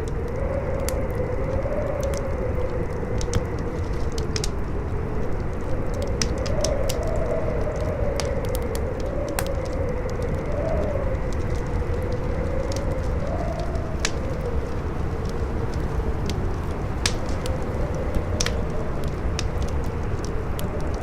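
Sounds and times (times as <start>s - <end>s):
campfire crackling and popping: 0.0s - 21.0s
howling wind: 0.0s - 21.0s.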